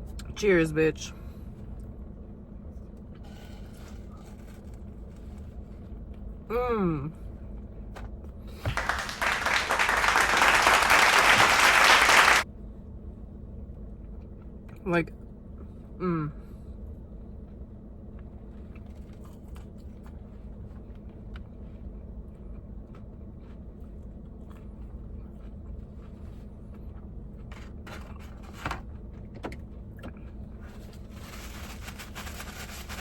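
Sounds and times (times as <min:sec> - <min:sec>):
steady low hum: 0:00.0 - 0:33.0
loud crackles: 0:08.8 - 0:12.4.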